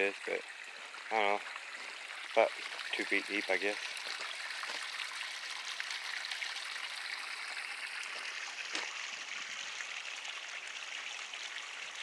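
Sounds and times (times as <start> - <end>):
water trickling through a ditch: 0.0 - 12.0.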